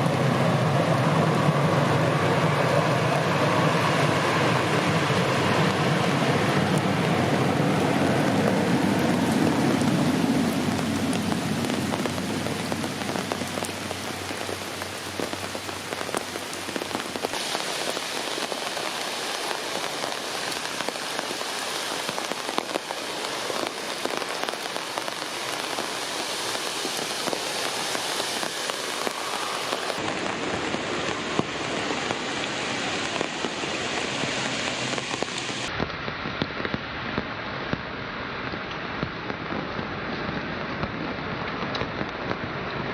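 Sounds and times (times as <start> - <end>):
heavy rain hissing: 0.0 - 41.5
raindrops ticking close by: 3.0 - 42.9.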